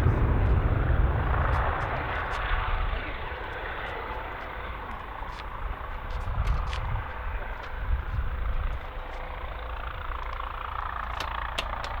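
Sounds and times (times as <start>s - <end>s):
low rumble: 0.0s - 11.0s
jet airliner engine noise: 0.0s - 12.0s.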